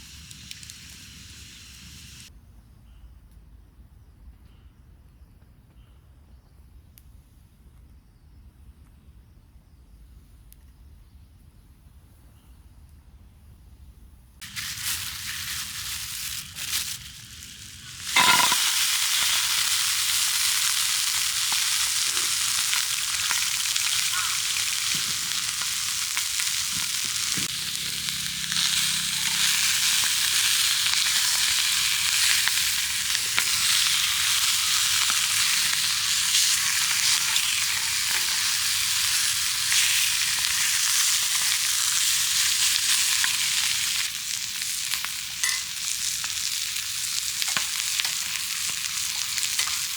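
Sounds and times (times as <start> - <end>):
food sizzling in frying pan: 0.0 - 2.3, 14.4 - 49.9.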